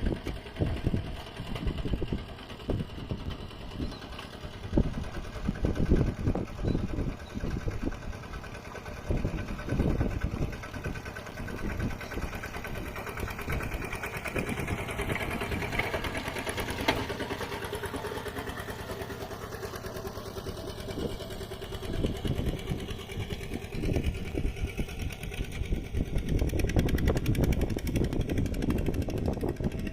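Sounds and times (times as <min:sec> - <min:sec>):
diesel tractor engine chugging: 0:00.0 - 0:29.9.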